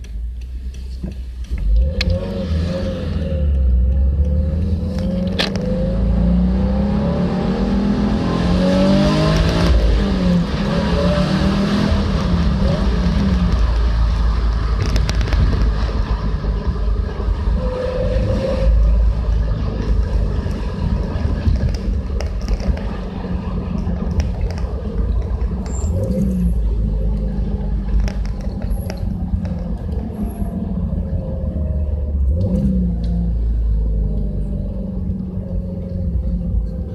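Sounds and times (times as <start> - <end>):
car exhaust drone: 0.0 - 36.9.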